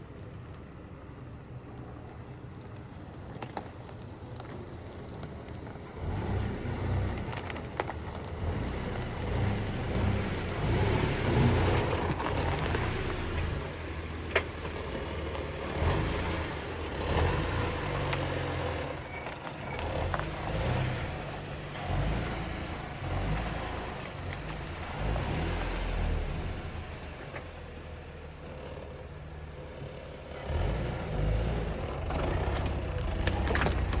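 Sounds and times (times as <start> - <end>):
vehicle engine low rumble: 0.0 - 34.0
knocks and rattles: 31.8 - 34.0.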